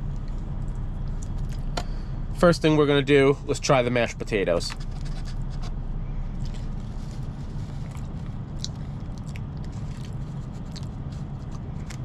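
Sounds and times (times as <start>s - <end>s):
steady low hum: 0.0s - 12.0s
person chewing food: 0.1s - 1.8s, 6.3s - 12.0s.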